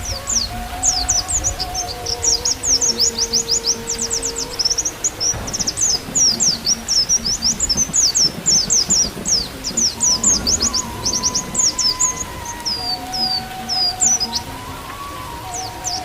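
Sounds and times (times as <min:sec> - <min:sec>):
bamboo flute note: 0:00.0 - 0:16.0
bird chirps and trills: 0:00.0 - 0:16.0.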